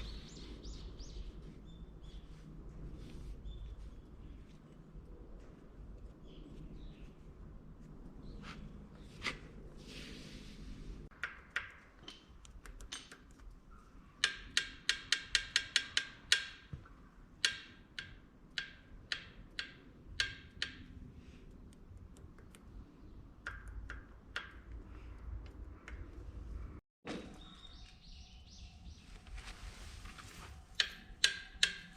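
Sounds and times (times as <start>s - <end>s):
tool tapping on metal: 14.2s - 20.9s, 30.8s - 31.9s.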